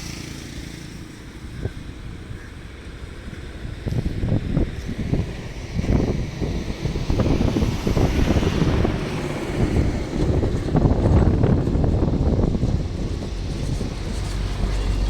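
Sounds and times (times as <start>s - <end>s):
wind buffeting microphone: 0.9s - 15.0s.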